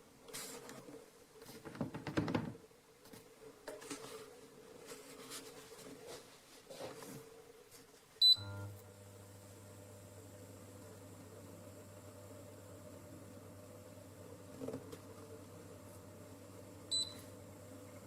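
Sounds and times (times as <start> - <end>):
clatter and rustling of handling: 0.3 - 8.1.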